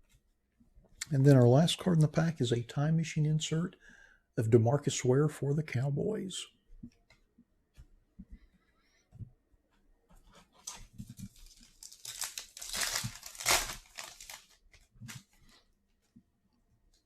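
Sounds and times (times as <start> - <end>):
foil wrapper tearing and crinkling: 10.6 - 15.2.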